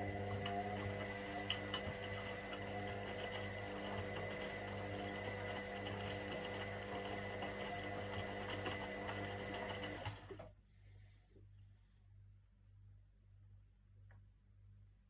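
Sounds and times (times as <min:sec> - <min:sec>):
washing machine running: 0:00.0 - 0:10.5.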